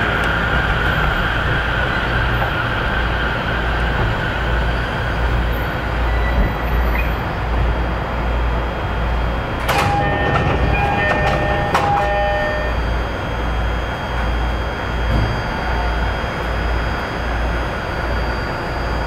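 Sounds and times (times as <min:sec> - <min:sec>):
train wheels rumbling on rails: 0:00.0 - 0:19.0
metallic clangs and ringing: 0:09.7 - 0:12.7.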